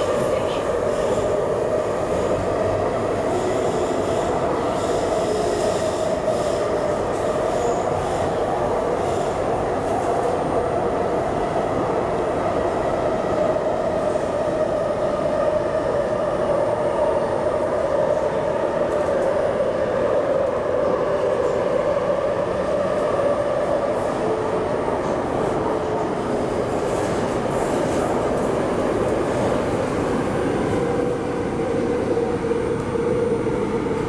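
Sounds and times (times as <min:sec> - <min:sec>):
train wheels rumbling on track: 0:17.6 - 0:34.0.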